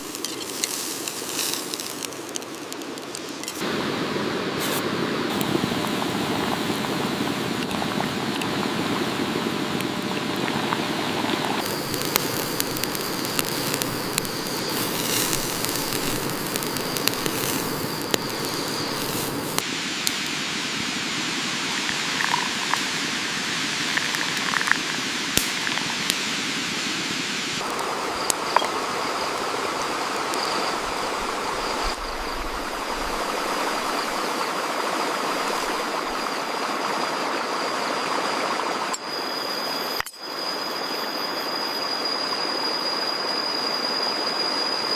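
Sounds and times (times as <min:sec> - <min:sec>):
steady rain-like hiss: 0:00.0 - 0:44.9
small clicks: 0:11.6 - 0:19.6.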